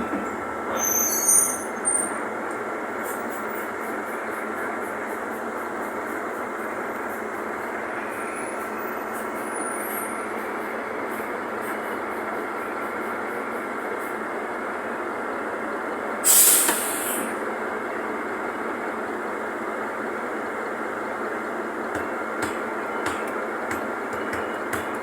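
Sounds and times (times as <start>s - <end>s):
bus diesel engine drone: 0.0s - 25.0s
compressed air hiss: 16.2s - 17.4s.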